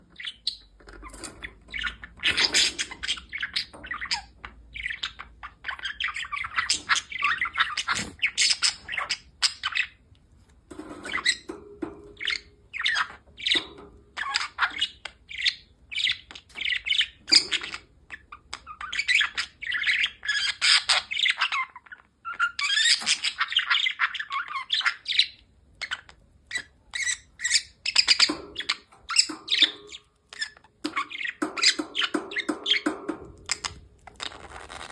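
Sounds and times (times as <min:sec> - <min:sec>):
budgerigar chattering and warbling: 0:12.2 - 0:33.8.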